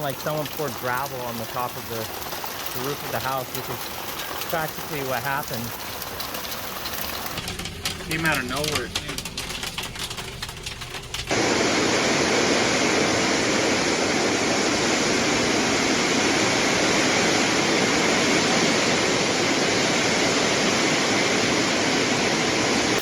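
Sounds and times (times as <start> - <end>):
scattered hail ticks: 0.0 - 11.4
hail pounding down: 0.0 - 23.0.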